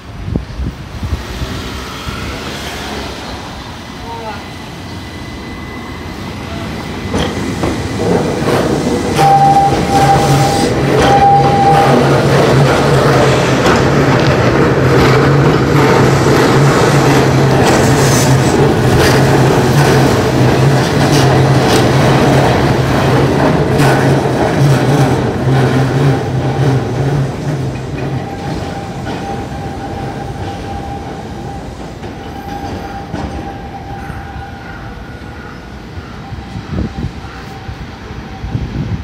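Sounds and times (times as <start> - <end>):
electric train humming: 0.1 - 39.0
wheels clacking over rail joints: 7.0 - 35.8
thin high tone: 9.2 - 12.2.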